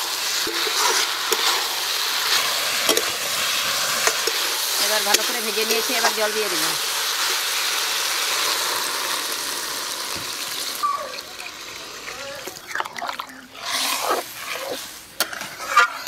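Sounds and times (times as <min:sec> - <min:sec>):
water pouring: 0:00.0 - 0:15.0
food sizzling in hot oil: 0:00.0 - 0:16.0
water splashing: 0:09.4 - 0:15.0
ladle stirring liquid: 0:10.8 - 0:16.0.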